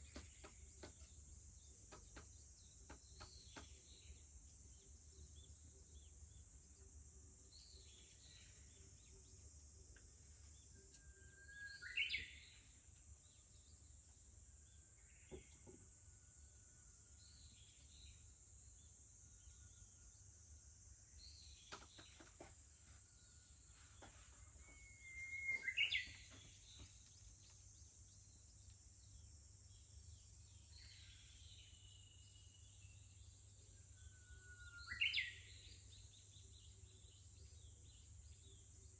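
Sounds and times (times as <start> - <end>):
faint bird chirps: 0.0 - 38.9
bush warbler singing: 10.5 - 13.9, 24.0 - 38.9.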